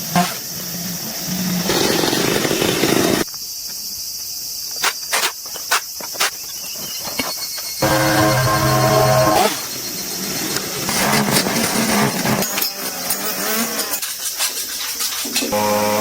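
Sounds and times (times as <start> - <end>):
insects chirring: 0.0 - 16.0
pitched motor hum: 15.6 - 16.0.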